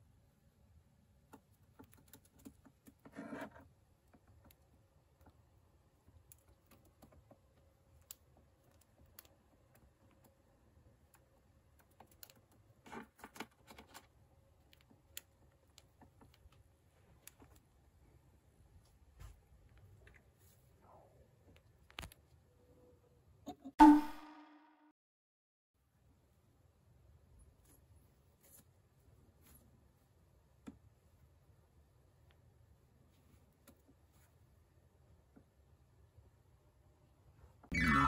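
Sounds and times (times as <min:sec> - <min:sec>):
faint small clicks and scratches: 0:01.1 - 0:18.2, 0:18.8 - 0:22.4, 0:27.3 - 0:31.4, 0:32.2 - 0:35.6.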